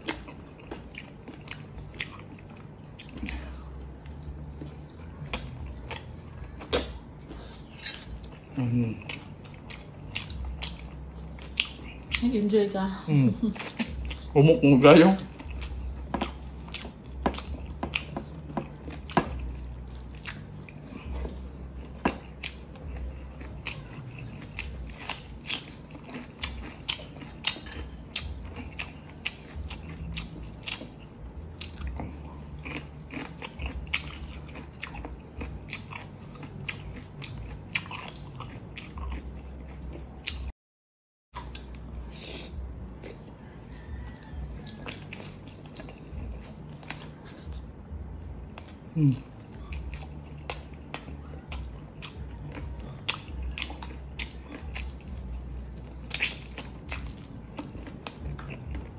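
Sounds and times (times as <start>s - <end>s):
wet chewing and lip smacks: 0.0s - 12.2s, 15.2s - 40.5s, 41.4s - 47.6s, 48.5s - 58.9s
low steady hum: 0.0s - 40.5s, 41.4s - 58.9s.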